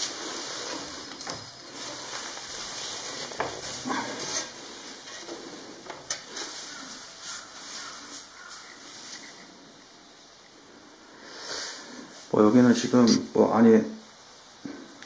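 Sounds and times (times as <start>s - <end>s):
rustling and scraping handling noise: 0.0s - 9.9s.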